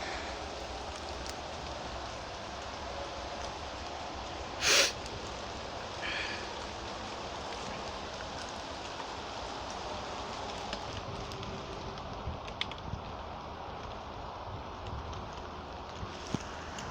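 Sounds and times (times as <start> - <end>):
heavy rain falling: 0.0 - 16.9
loud hissing burst: 4.6 - 5.1.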